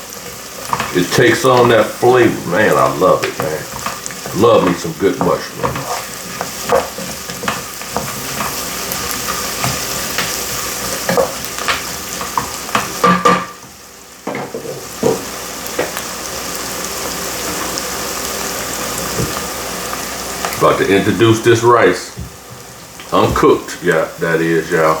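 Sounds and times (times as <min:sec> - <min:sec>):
vegetables sizzling in butter: 0:00.0 - 0:25.0
spoon knocking and scraping pot: 0:00.6 - 0:01.0, 0:03.3 - 0:15.9.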